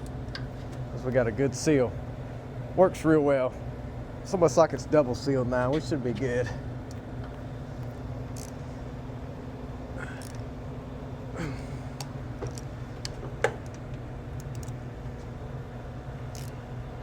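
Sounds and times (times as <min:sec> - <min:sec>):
low electrical hum: 0:00.0 - 0:17.0
tools and metal parts clicking: 0:14.4 - 0:14.8, 0:16.3 - 0:16.6.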